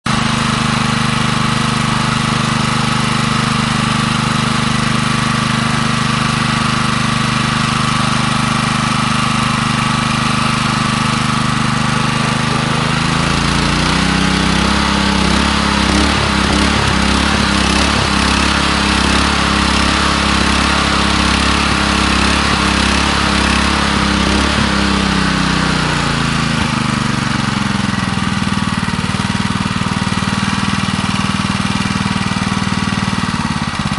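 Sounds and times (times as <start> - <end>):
petrol engine running: 0.1 - 33.9
light engine knocks: 10.7 - 25.0.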